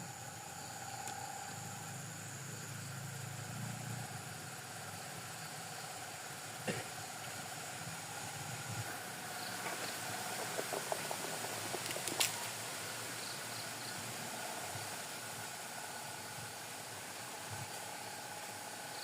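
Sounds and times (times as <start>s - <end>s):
night insects chirring: 0.0s - 19.0s
small clicks: 9.6s - 12.5s.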